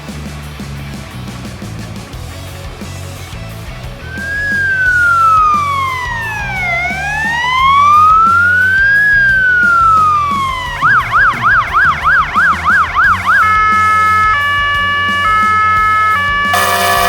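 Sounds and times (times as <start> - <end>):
music with steady beat: 1.5 - 17.0
fire engine siren: 4.1 - 17.0.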